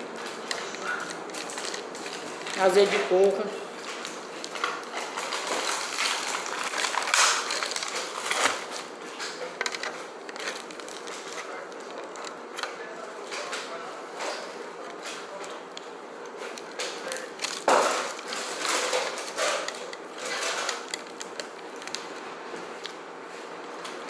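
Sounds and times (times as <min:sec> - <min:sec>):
plastic fork scraping foil tray: 0:04.6 - 0:15.6, 0:16.3 - 0:22.1.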